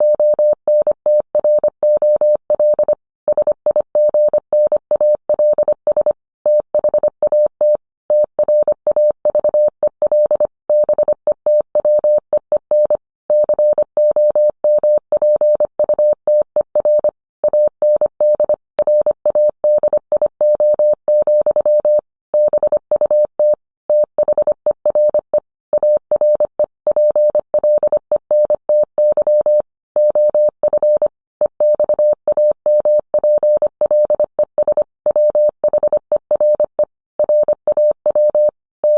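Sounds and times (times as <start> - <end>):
morse code tone: 29.2 - 38.9.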